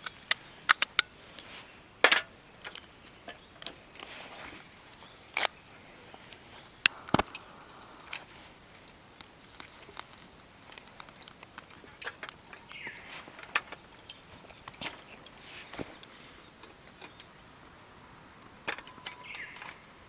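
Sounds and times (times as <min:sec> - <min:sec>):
sharp clicks and light knocks: 0:00.0 - 0:04.1, 0:09.2 - 0:17.3
faint hiss: 0:00.0 - 0:20.0.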